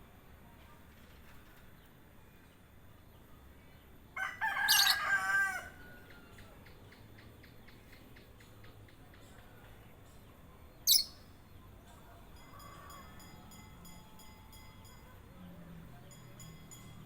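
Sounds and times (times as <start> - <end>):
sharp high bird chirp: 4.6 - 5.0, 10.9 - 11.3.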